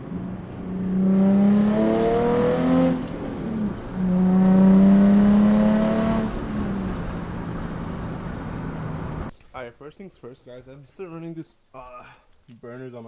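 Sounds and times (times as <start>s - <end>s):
car engine revving: 0.0s - 9.3s.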